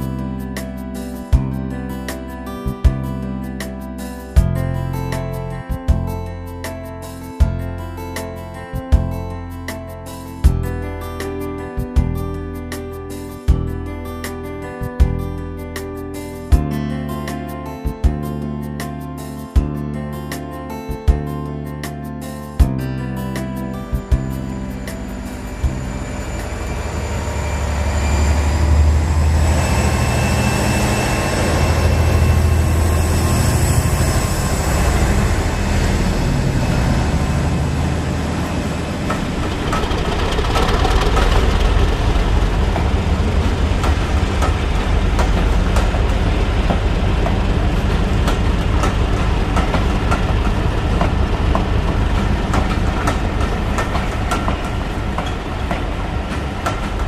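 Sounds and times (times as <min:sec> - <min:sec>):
high whine: 0:23.7 - 0:57.0
model locomotive engine drone: 0:23.9 - 0:57.0
wheels clicking over rail joints: 0:36.6 - 0:57.0.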